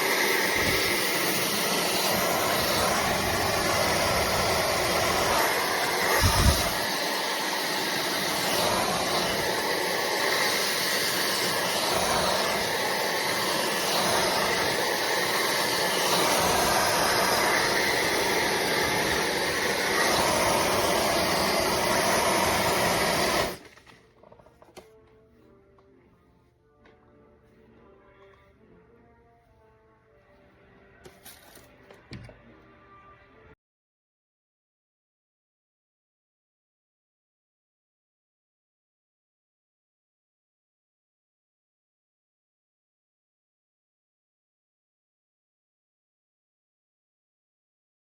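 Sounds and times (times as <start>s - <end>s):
hair dryer running: 0.0s - 23.7s.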